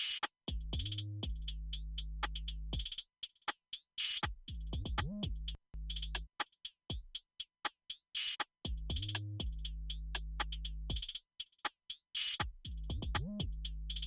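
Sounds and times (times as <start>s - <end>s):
electronic drum beat: 0.0s - 3.0s, 4.0s - 6.3s, 8.2s - 11.2s, 12.2s - 14.0s.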